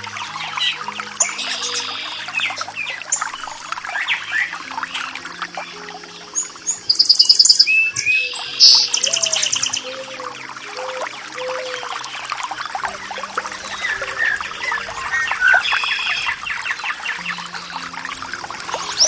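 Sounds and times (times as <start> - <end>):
running water: 0.0 - 19.0
songbirds chirping and singing: 0.0 - 19.0
loud rapid bird trills: 6.4 - 12.2.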